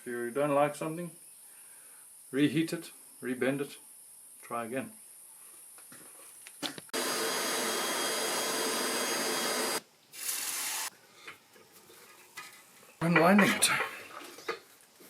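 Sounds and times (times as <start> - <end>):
forge air blower: 7.0 - 9.8.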